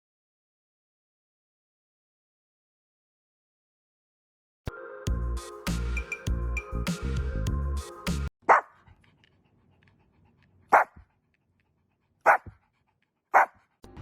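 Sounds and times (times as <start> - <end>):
background music: 4.7 - 8.3
dog barking: 8.5 - 8.8, 10.7 - 11.1, 12.2 - 12.6, 13.3 - 13.7.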